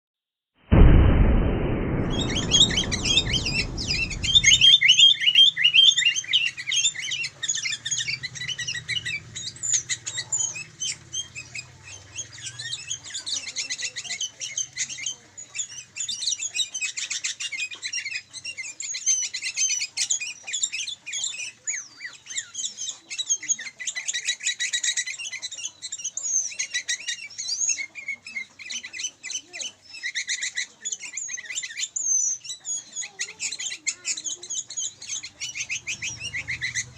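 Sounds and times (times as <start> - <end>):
loud rushing noise: 0.7 - 4.8
birds chirping and trilling: 2.0 - 36.9.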